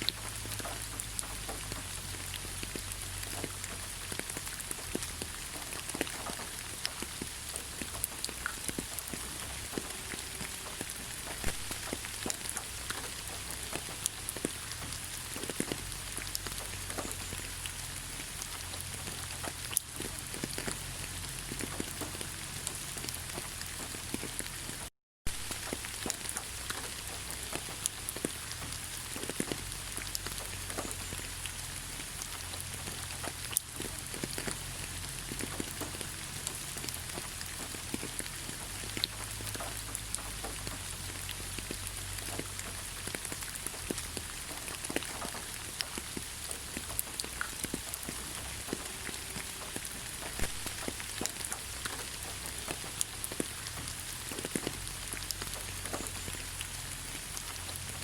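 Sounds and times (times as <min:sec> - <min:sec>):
rain falling: 0:00.0 - 0:58.0
raindrops ticking: 0:00.0 - 0:58.0.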